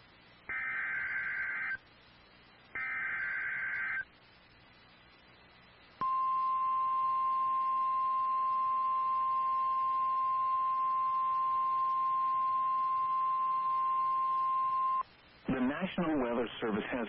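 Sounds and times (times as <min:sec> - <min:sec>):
steady high warning tone: 0:00.5 - 0:01.8.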